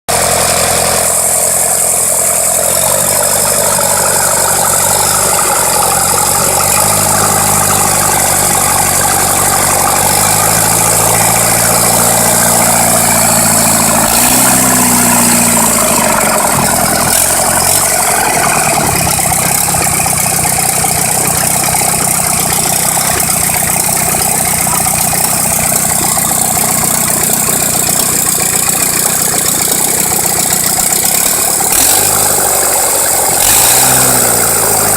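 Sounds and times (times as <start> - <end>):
engine running and idling: 0.1 - 34.9.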